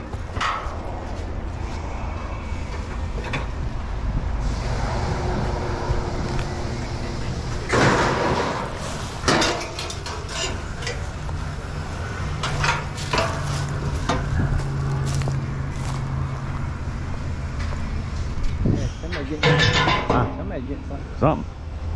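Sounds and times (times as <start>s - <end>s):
low engine hum: 0.0s - 19.0s
scrap metal clanking: 7.3s - 16.0s, 18.9s - 20.6s.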